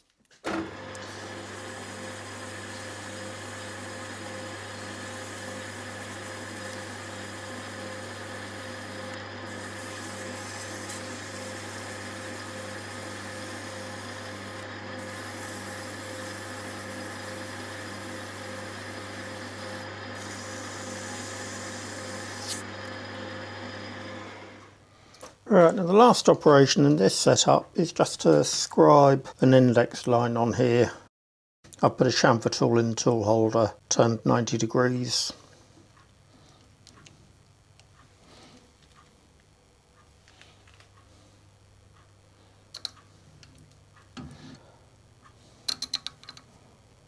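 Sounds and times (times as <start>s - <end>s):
metal lathe humming: 0.5s - 24.8s.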